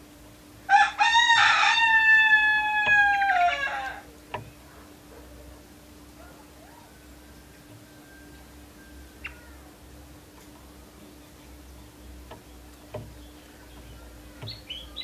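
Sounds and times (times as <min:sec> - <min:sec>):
canary chirps: 0:06.2 - 0:09.7, 0:11.0 - 0:15.0
canary ticks and clicks: 0:11.4 - 0:15.0.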